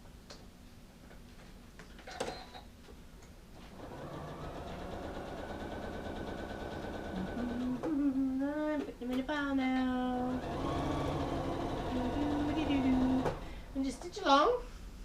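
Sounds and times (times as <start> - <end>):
sewing machine stitching: 3.7 - 7.9, 10.3 - 13.5.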